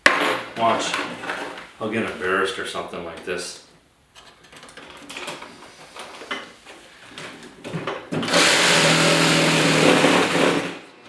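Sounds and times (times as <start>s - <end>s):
reciprocating saw cutting wood: 8.2s - 10.7s.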